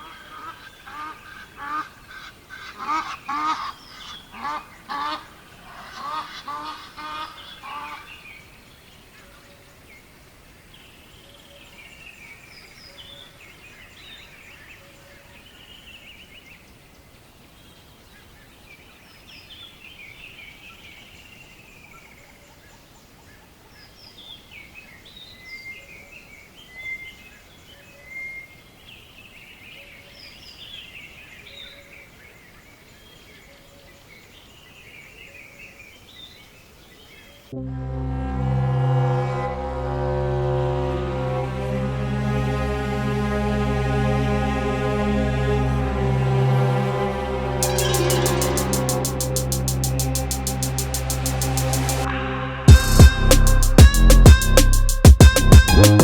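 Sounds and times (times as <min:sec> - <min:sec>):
waterfowl honking: 0:00.0 - 0:08.1.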